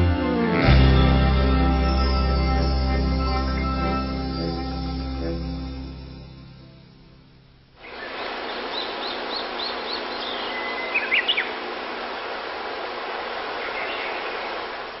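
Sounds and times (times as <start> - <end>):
outdoor hiss: 5.7 - 15.0
bird whistle: 7.8 - 11.6
small birds chirping: 7.8 - 12.4, 13.2 - 15.0.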